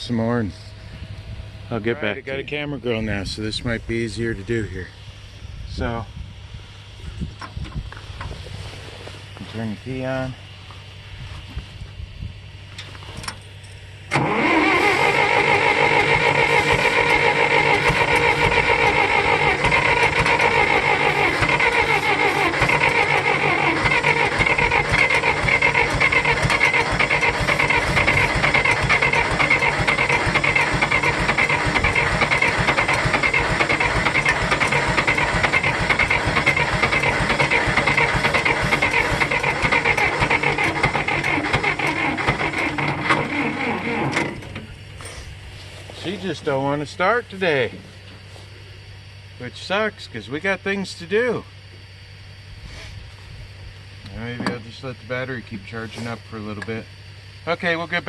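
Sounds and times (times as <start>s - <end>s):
starter motor cranking engine: 14.1s - 45.2s.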